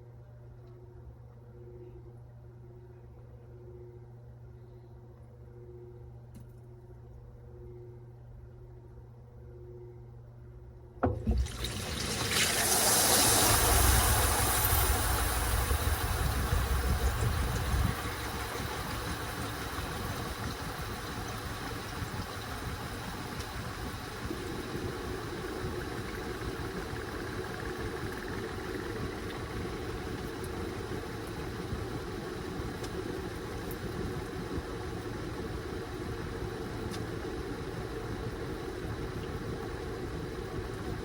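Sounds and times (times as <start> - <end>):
washing machine click: 11.0 - 11.8
water rushing through washing machine: 11.0 - 41.0.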